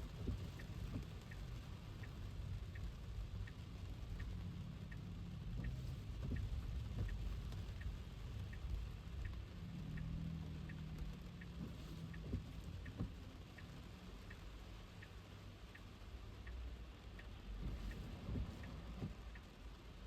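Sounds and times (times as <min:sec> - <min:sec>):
rain: 0:00.0 - 0:20.0
turn signal ticking: 0:00.0 - 0:20.0
tyres rumbling on wet road: 0:00.0 - 0:20.0.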